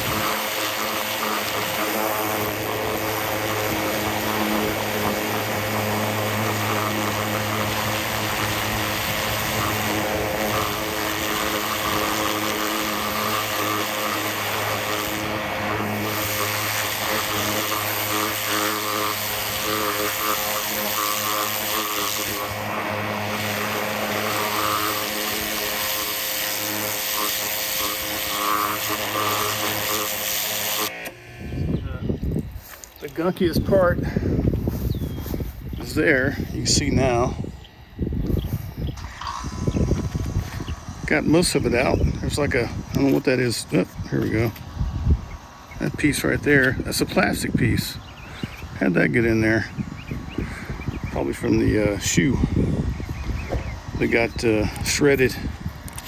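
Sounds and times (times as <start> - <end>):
water jet hissing: 0.0 - 31.2
pressure washer motor humming: 0.0 - 56.0.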